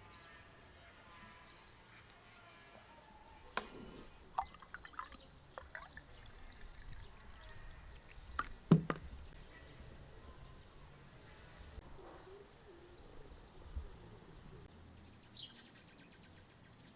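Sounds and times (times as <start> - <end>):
water pouring and dripping: 4.4 - 9.3
small knocks: 8.4 - 9.3.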